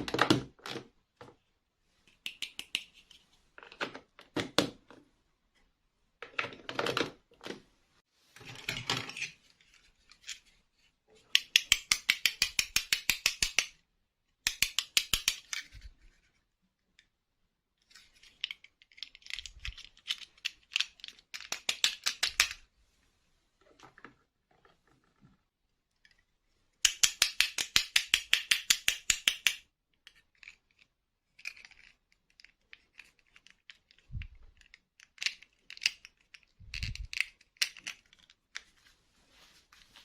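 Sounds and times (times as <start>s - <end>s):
plastic pieces clicking: 18.0s - 22.6s, 26.8s - 38.7s.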